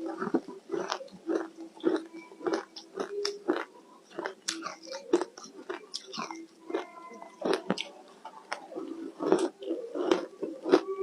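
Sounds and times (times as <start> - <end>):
ice being chewed: 0.0 - 11.0.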